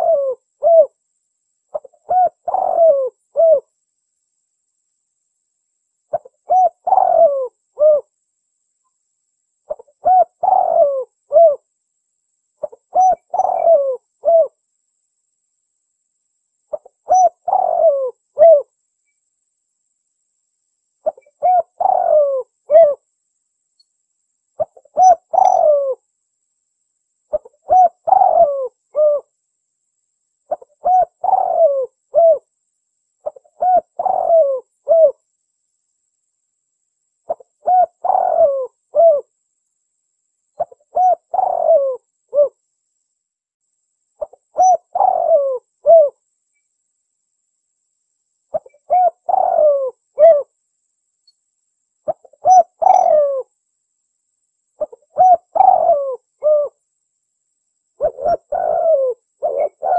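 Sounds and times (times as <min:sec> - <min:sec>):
dove cooing: 0:00.0 - 0:01.0, 0:01.7 - 0:03.7, 0:06.1 - 0:08.1, 0:09.7 - 0:11.7, 0:12.6 - 0:14.6, 0:16.7 - 0:18.7, 0:21.0 - 0:23.0, 0:24.6 - 0:26.0, 0:27.3 - 0:29.3, 0:30.5 - 0:32.5, 0:33.2 - 0:35.2, 0:37.3 - 0:39.3, 0:40.6 - 0:42.6, 0:44.2 - 0:46.2, 0:48.5 - 0:50.5, 0:52.1 - 0:53.5, 0:54.8 - 0:56.8, 0:58.0 - 0:59.9.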